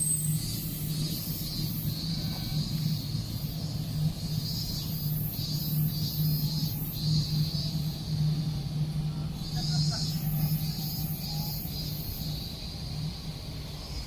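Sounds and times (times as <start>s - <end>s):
railcar electric hum: 0.0s - 14.0s.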